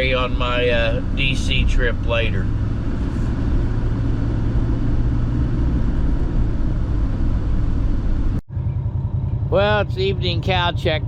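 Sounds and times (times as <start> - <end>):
vehicle interior engine and road noise: 0.0 - 11.0.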